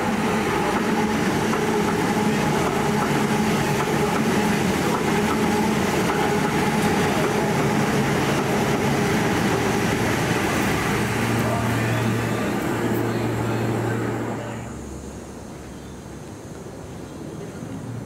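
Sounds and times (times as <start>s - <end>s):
electric passenger train running: 0.0s - 18.0s.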